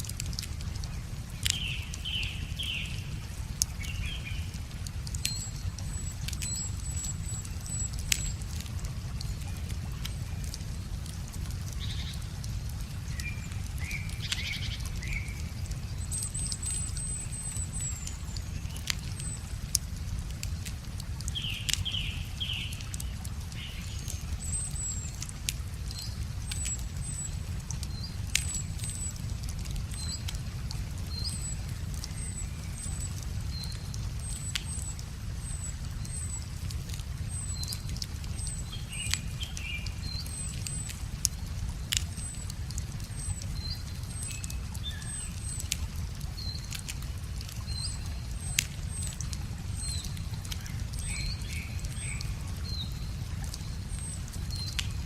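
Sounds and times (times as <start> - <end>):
wood fire crackling: 0.0 - 55.0
songbird chirping: 1.1 - 41.0.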